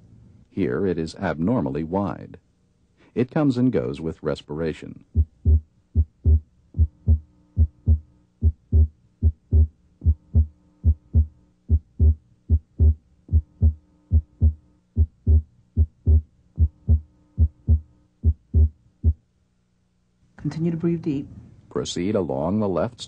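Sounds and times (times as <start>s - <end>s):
heartbeat through stethoscope: 5.1s - 19.2s.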